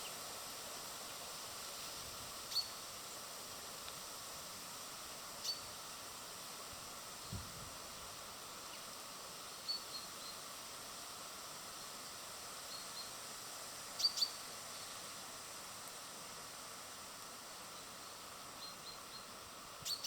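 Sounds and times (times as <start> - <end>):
steady outdoor hiss: 0.0 - 20.0
small birds chirping: 2.5 - 2.8, 5.4 - 5.7, 14.0 - 15.1, 17.6 - 20.0.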